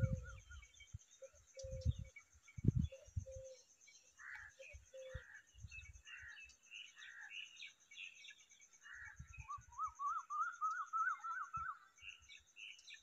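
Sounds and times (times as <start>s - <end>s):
bird chirps and warbling: 0.0s - 3.6s.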